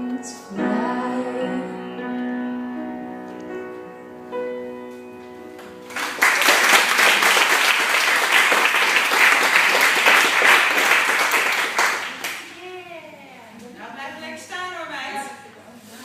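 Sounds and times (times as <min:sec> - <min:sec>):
audience applauding: 0:05.6 - 0:12.6.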